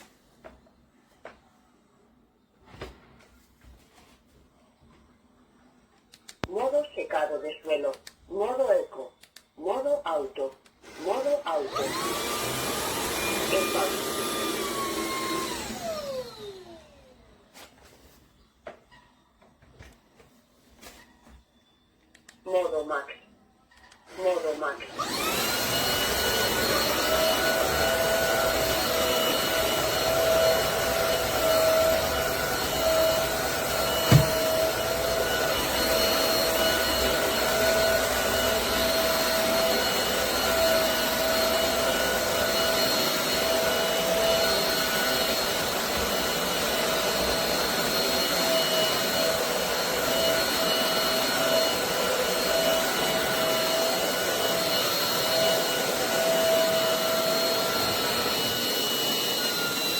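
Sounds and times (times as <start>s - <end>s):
floor vacuum running: 10.8s - 18.2s, 24.1s - 59.9s.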